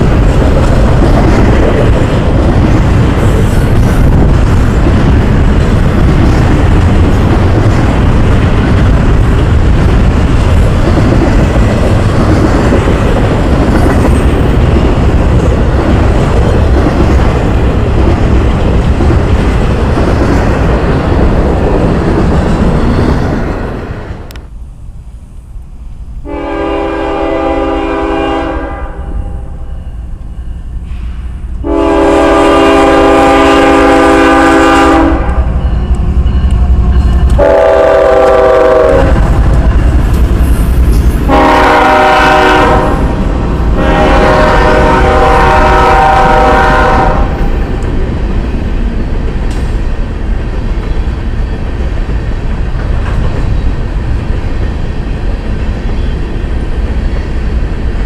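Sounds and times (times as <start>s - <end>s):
freight train wheels on rail: 0.0s - 58.0s
locomotive air horn blasts: 26.2s - 29.4s, 31.6s - 35.6s, 37.4s - 39.2s, 41.3s - 43.1s, 43.8s - 47.4s.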